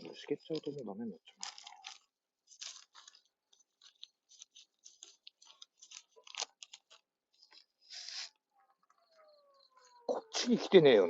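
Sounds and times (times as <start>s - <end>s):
scratchy rustles of handling: 0.0s - 9.2s
small clicks and ticks: 0.4s - 9.9s.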